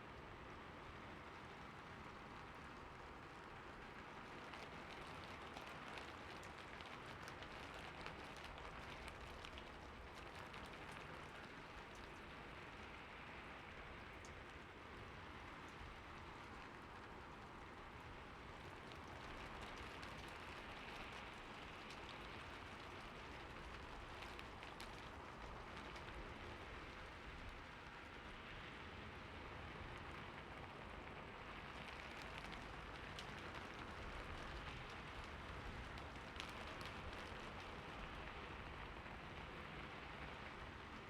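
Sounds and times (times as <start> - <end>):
soft hiss of rainfall: 0.0 - 41.0
single raindrops ticking: 31.7 - 38.4.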